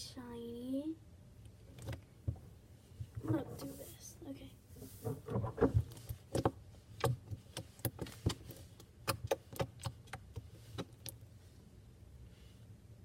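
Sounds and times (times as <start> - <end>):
slime squishing with clicks and pops: 6.3 - 11.2.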